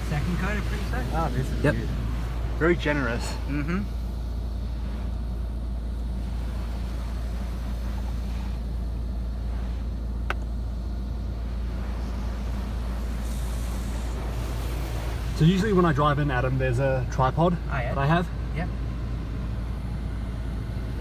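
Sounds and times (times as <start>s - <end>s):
car wash low rumble: 0.0s - 21.0s
water spray hiss: 6.1s - 16.0s.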